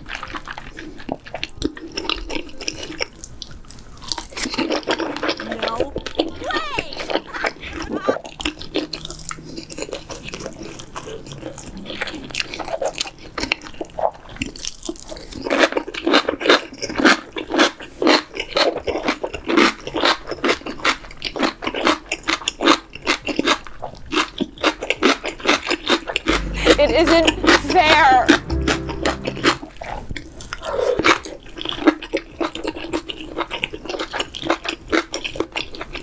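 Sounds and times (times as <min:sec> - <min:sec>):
crunchy food being chewed: 0:00.0 - 0:06.2, 0:07.1 - 0:26.4, 0:31.5 - 0:36.0.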